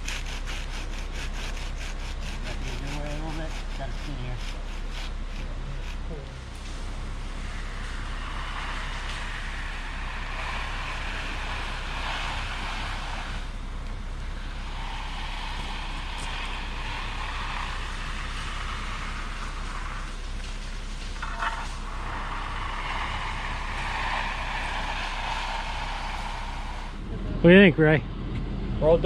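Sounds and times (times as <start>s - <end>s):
diesel engine working: 0.0s - 29.0s.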